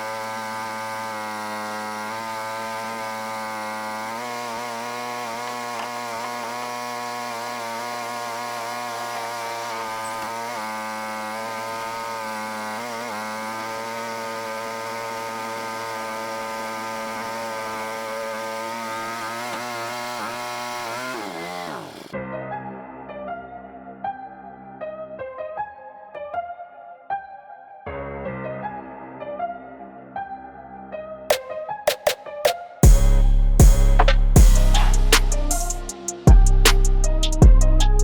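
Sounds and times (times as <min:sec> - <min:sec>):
small petrol engine running: 0:00.0 - 0:22.2.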